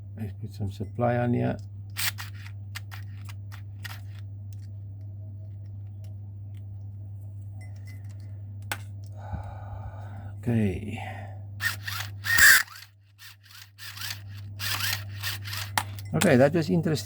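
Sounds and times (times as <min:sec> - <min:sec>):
steady low hum: 0:00.0 - 0:17.0
small gear motor buzzing: 0:01.9 - 0:04.2, 0:11.6 - 0:15.8.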